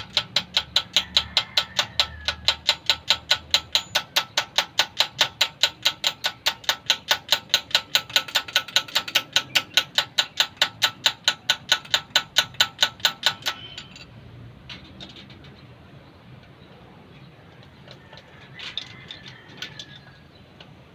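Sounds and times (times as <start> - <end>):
rapid mechanical clicking: 0.0 - 15.8.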